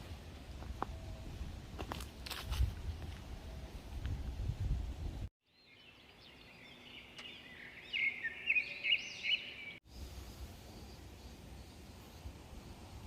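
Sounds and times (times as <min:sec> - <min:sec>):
songbird singing: 0:05.1 - 0:12.7.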